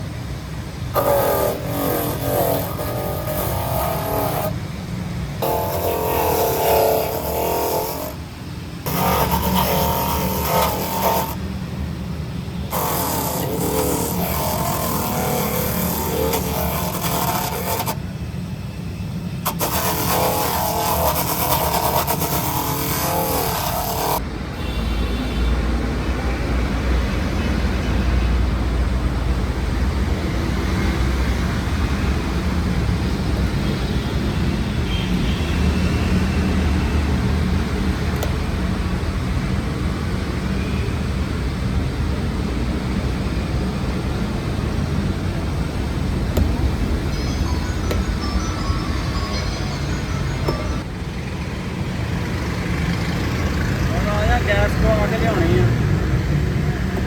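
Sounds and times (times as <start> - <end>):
wavering tones: 46.4 - 51.3.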